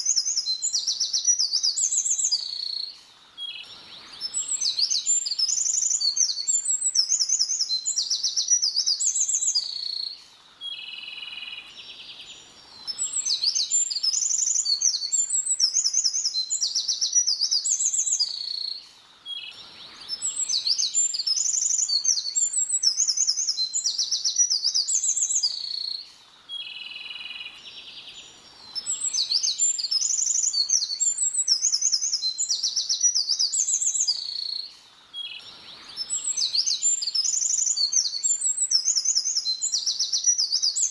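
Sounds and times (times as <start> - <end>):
songbird chirping and trilling: 0.0 - 40.9.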